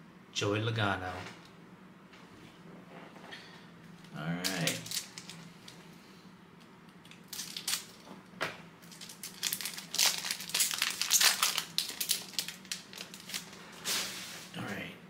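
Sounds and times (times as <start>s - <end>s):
plastic wrapper crinkling: 4.4s - 5.8s, 7.1s - 8.1s, 8.8s - 13.9s.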